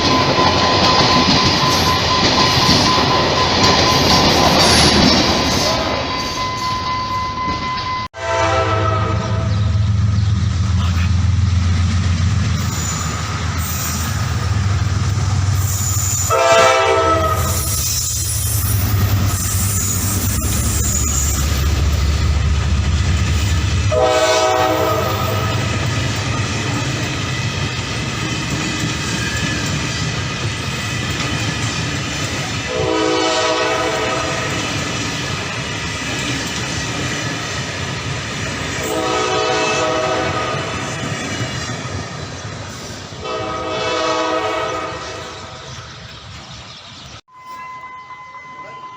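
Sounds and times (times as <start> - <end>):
train rumbling: 0.0 - 48.9
train horn: 8.1 - 9.7, 16.1 - 17.9, 23.8 - 25.8, 32.6 - 34.6, 38.8 - 40.9, 43.2 - 45.6.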